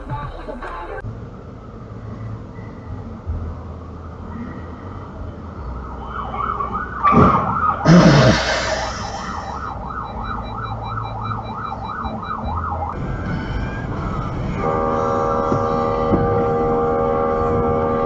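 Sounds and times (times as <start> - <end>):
siren yelping: 5.9 - 13.0
loud noise bursts: 7.1 - 9.8.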